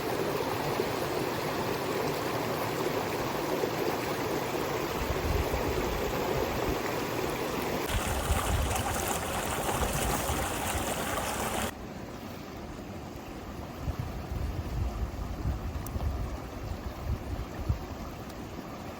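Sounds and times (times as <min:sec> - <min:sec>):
river water running: 0:00.0 - 0:13.8
wind rumble on microphone: 0:07.9 - 0:11.7, 0:13.6 - 0:18.1.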